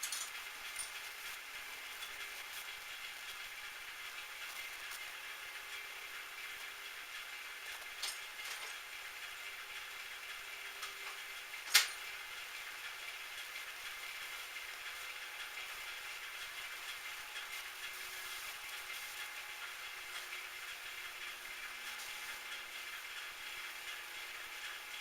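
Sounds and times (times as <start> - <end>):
steady mechanical noise: 0.0 - 25.0.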